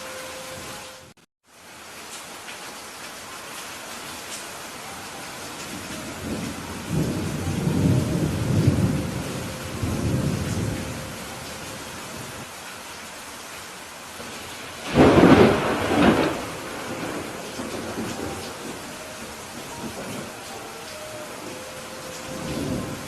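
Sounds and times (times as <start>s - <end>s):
steady rain: 0.0s - 23.0s
rolling thunder: 5.7s - 12.4s, 14.4s - 20.6s, 21.4s - 23.0s
sharp thunderclap: 14.8s - 18.8s.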